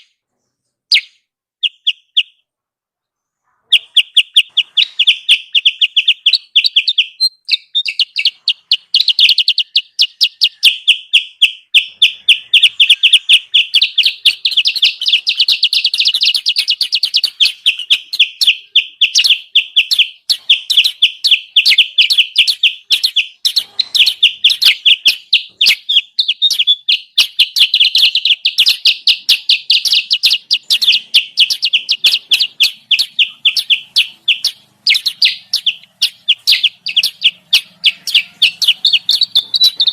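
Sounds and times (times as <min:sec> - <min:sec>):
high sharp bird chirps: 0:00.0 - 0:39.9.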